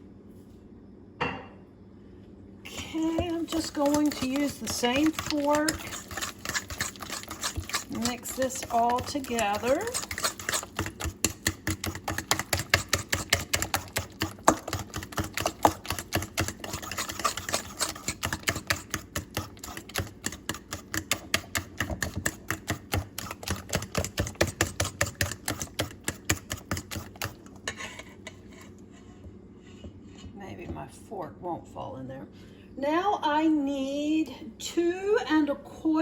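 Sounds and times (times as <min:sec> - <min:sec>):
fork beating batter in bowl: 0:02.7 - 0:30.4.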